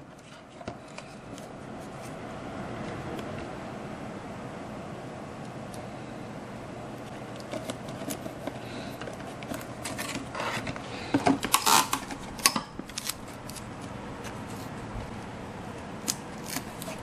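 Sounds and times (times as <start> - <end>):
steady background hum: 0.0 - 17.0
scissors snipping: 16.0 - 17.0.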